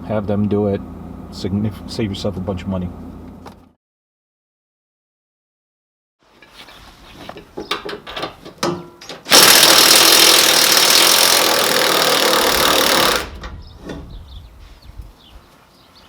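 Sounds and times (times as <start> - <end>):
power tool running: 9.3 - 13.4.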